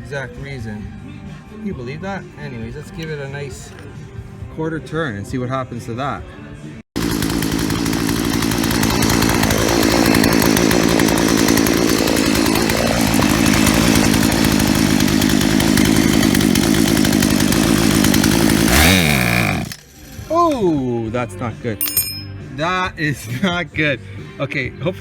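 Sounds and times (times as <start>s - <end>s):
chainsaw engine running: 6.9s - 20.8s.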